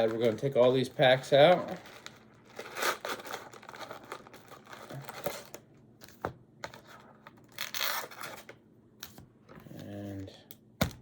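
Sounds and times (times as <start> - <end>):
foil packs crinkling: 0.0 - 5.6.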